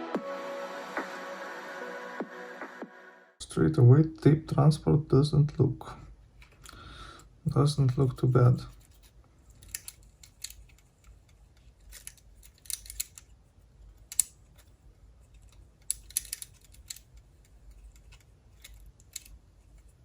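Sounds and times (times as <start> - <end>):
small plastic parts clicking: 8.7 - 20.0.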